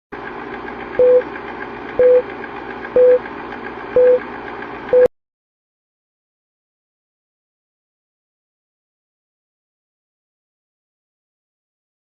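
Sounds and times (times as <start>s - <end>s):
short steady beeps: 1.0s - 1.3s, 2.0s - 2.2s, 3.0s - 3.2s, 4.0s - 4.2s.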